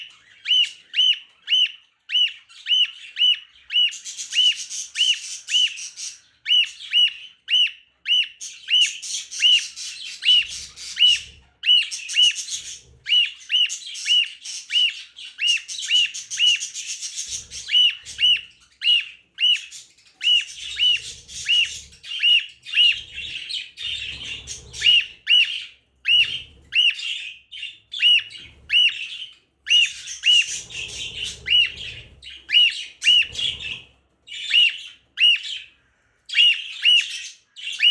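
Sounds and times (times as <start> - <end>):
harsh scratchy bird chatter: 8.4 - 34.9.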